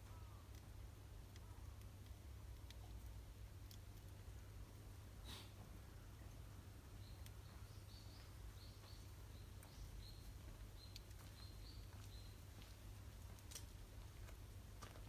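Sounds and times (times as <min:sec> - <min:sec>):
small bird chirping: 0:07.0 - 0:12.7.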